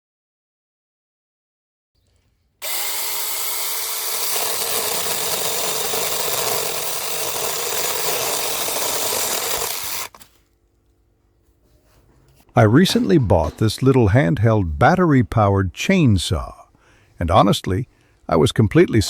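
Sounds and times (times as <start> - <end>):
cordless chainsaw cutting wood: 2.6 - 10.3.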